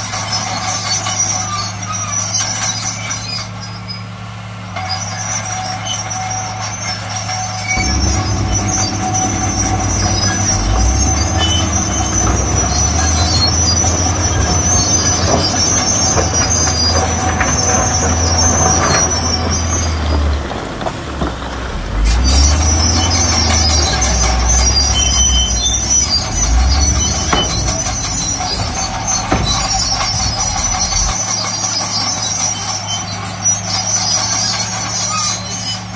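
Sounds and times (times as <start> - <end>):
bulldozer diesel engine: 7.7 - 35.9
steel tracks squealing: 7.7 - 35.9.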